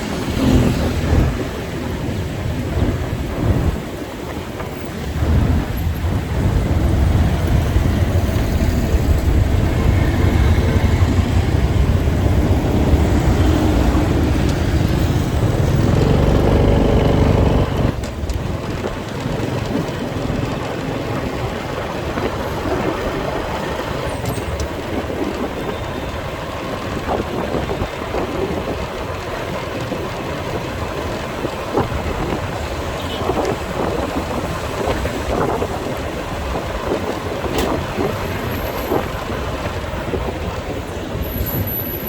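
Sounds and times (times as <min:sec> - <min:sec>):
motorbike engine: 0:00.0 - 0:04.0, 0:05.0 - 0:41.0
heavy low rumble: 0:05.0 - 0:25.6.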